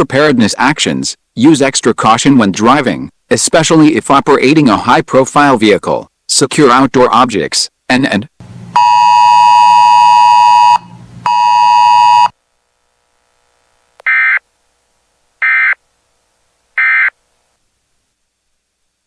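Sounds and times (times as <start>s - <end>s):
short data bursts: 8.7s - 12.3s, 14.0s - 14.4s, 15.4s - 15.8s, 16.8s - 17.2s.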